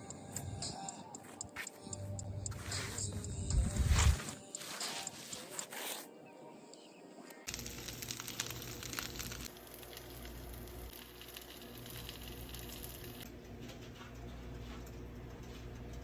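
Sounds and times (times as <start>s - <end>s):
crackling rustling noise: 7.5s - 13.2s.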